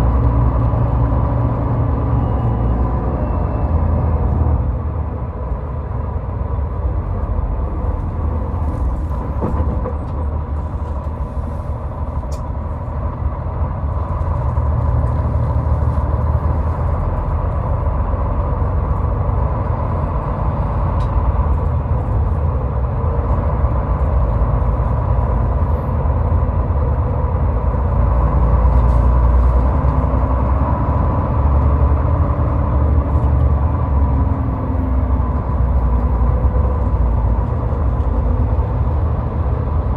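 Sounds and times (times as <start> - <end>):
tyre and engine rumble: 0.0 - 39.9.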